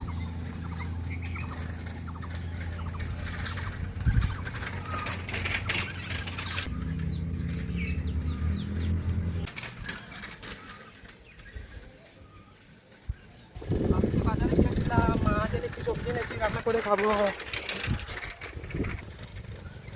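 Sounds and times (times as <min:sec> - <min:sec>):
wings flapping: 0:00.0 - 0:07.8, 0:12.6 - 0:19.9
birds chirping: 0:00.0 - 0:19.9.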